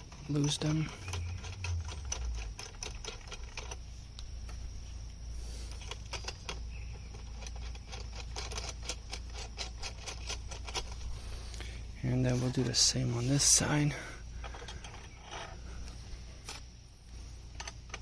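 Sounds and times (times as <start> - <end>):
metal nuts clicking and rattling: 0.0 - 4.6, 5.6 - 11.2, 14.4 - 15.7, 17.5 - 18.0
low hum: 0.0 - 18.0.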